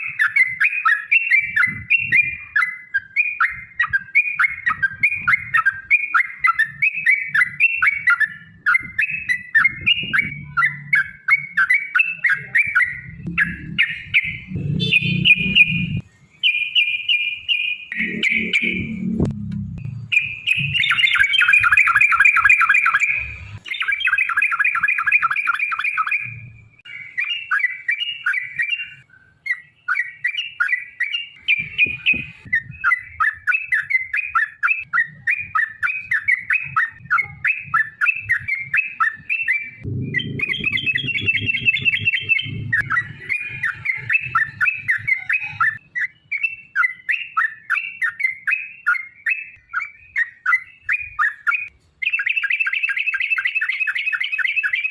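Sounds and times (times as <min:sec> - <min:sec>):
bulbul chattering song: 0:00.0 - 0:54.9.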